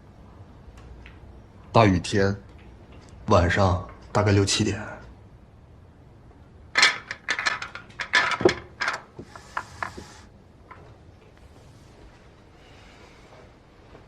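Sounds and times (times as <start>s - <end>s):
sharp clacks and knocks: 6.8s - 10.8s.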